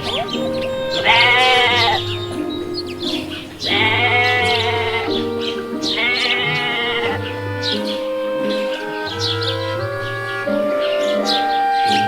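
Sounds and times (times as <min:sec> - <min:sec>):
sheep bleating: 0:00.0 - 0:08.5
background music: 0:00.0 - 0:12.0.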